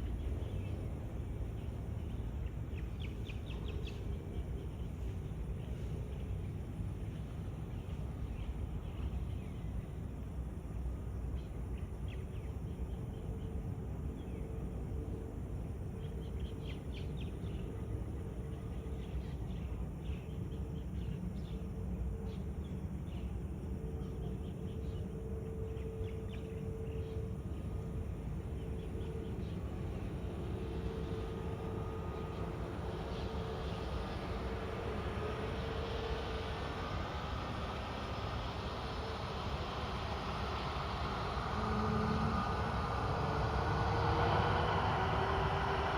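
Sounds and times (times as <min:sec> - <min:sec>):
jet aircraft engine whine: 0:00.0 - 0:45.9
low rumble and hum: 0:12.3 - 0:45.9.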